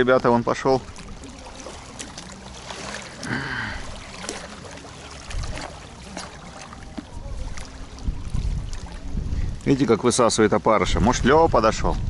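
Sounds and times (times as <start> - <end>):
wind buffeting microphone: 5.2 - 5.8, 7.0 - 12.0.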